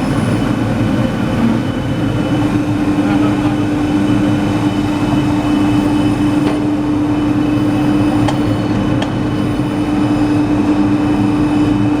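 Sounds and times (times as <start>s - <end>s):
sanding machine humming: 0.0s - 7.9s.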